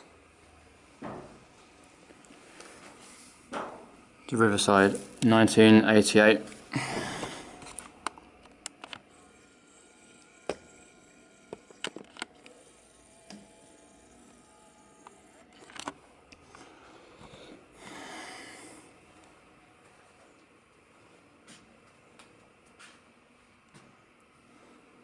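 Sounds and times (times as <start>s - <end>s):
soft breathy rush of noise: 16.4s - 19.0s.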